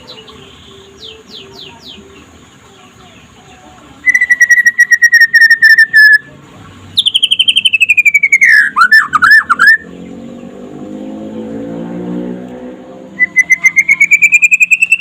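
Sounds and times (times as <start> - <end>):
bird singing rapid trills: 0.0 - 6.3, 6.9 - 10.8, 13.1 - 15.0.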